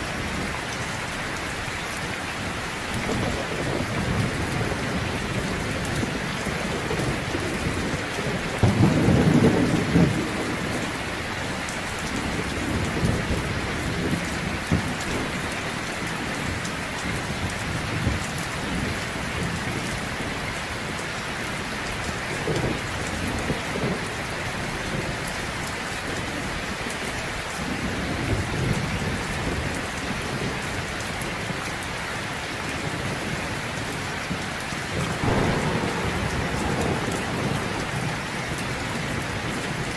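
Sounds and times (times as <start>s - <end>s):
heavy rain falling: 0.0s - 39.9s
thunder rumbling: 2.4s - 19.8s, 32.8s - 39.9s.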